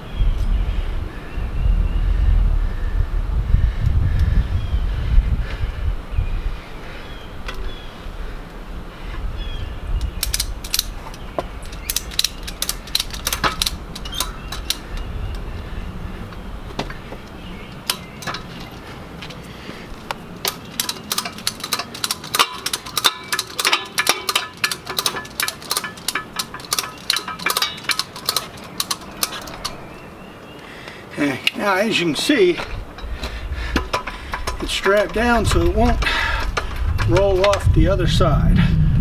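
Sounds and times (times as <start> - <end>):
ratchet strap pawl clicking: 10.0 - 15.5, 17.7 - 29.9, 32.7 - 37.9.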